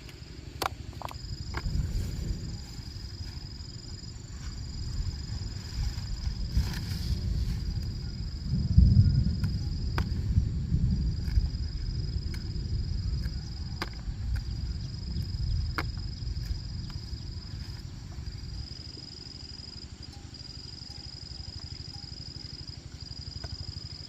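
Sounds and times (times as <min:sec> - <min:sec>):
low rumble: 0:00.0 - 0:18.8
insects trilling: 0:00.0 - 0:24.0.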